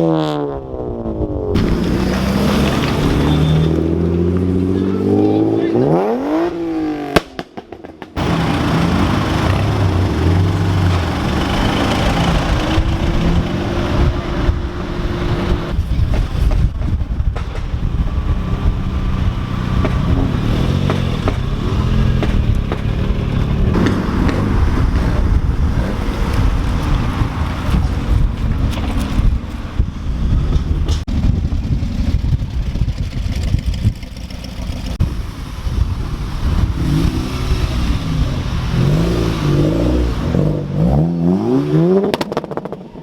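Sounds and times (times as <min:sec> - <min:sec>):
car engine and exhaust running: 0:08.2 - 0:40.5.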